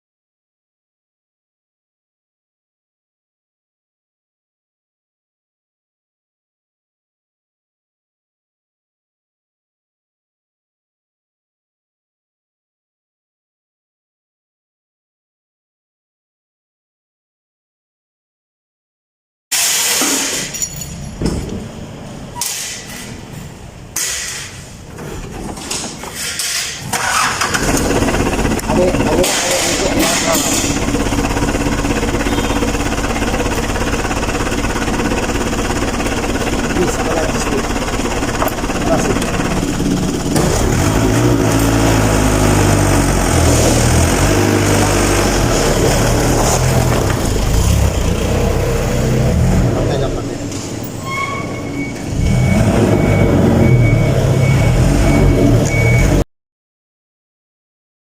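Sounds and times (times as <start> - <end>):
engine droning: 27.0 - 50.9, 51.7 - 56.2.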